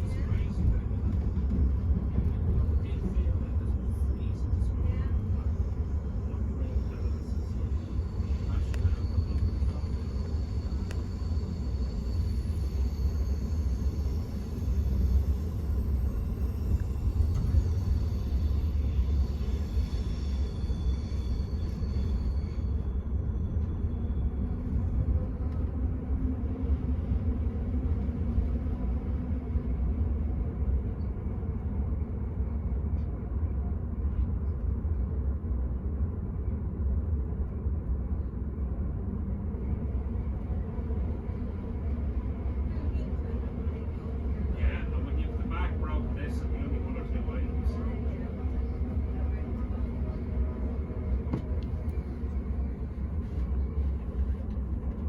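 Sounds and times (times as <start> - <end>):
train rumble inside carriage: 0.0 - 55.0.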